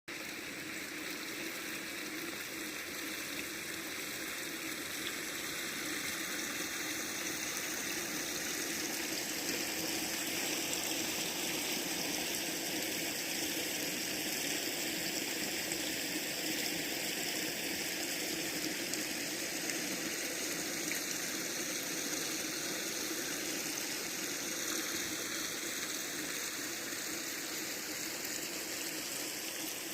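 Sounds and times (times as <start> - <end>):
stream water flowing: 0.1 - 29.9.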